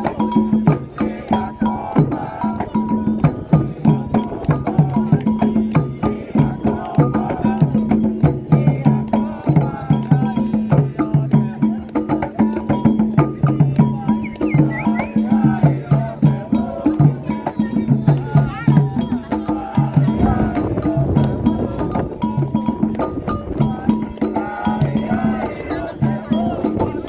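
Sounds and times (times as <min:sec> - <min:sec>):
atabaque drums fast rhythm: 0:00.0 - 0:27.0
voices singing: 0:00.0 - 0:27.0.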